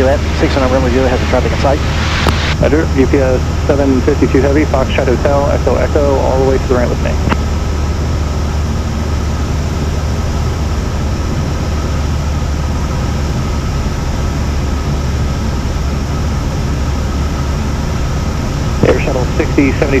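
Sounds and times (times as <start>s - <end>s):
airplane engine and propeller drone: 0.0s - 20.0s.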